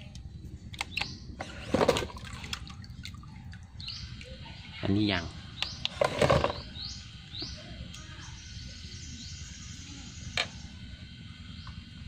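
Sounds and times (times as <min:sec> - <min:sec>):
low background rumble: 0:00.0 - 0:12.0
bird chirping: 0:00.8 - 0:01.6, 0:03.3 - 0:10.8.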